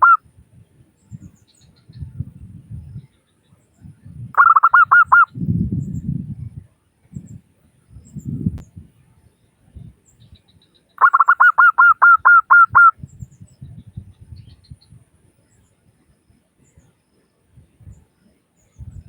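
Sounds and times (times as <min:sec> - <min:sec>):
dove cooing: 0:04.4 - 0:05.3, 0:11.0 - 0:12.9.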